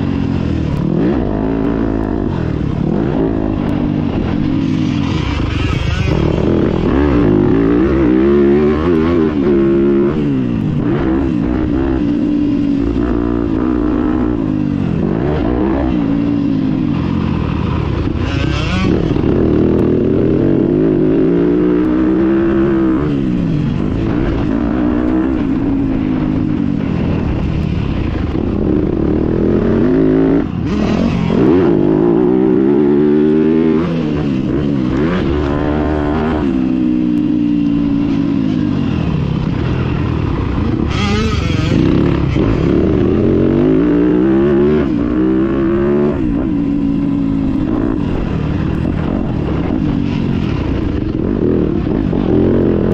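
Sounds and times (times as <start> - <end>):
motocross bike engine revving: 0.0 - 52.9.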